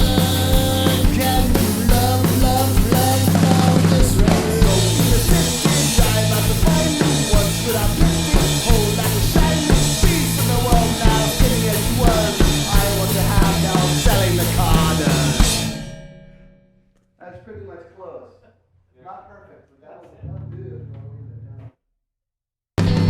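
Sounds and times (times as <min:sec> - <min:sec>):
drum kit steady beat: 0:00.0 - 0:16.0, 0:22.8 - 0:23.0
rock band playing: 0:00.0 - 0:16.1, 0:22.8 - 0:23.0.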